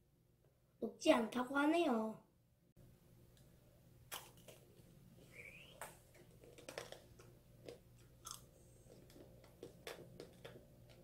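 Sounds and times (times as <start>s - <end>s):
candy shell crunching: 6.1s - 11.0s.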